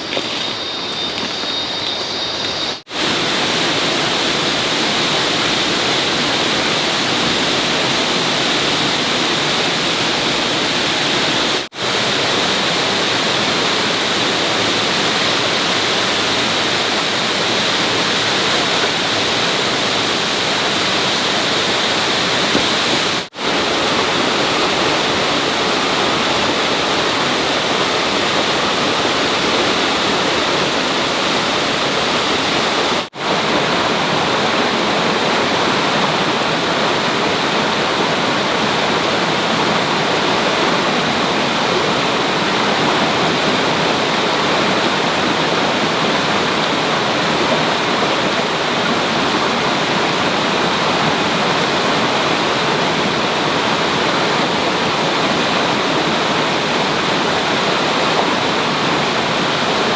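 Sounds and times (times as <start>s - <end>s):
loud rushing hiss: 0.0s - 33.5s.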